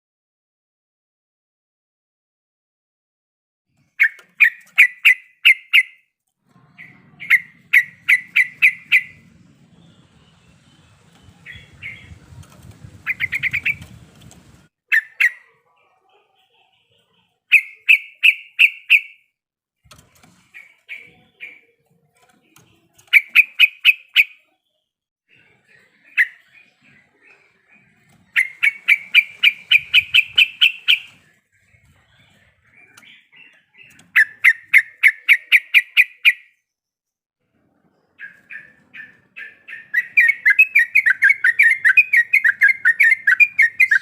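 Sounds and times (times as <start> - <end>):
bulbul chattering song: 4.0 - 6.0, 6.6 - 19.3, 20.4 - 24.6, 25.4 - 36.6, 38.2 - 44.0.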